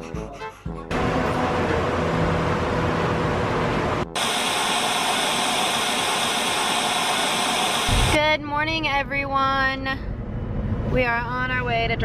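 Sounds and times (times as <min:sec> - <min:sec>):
loud even hiss: 0:04.2 - 0:08.2.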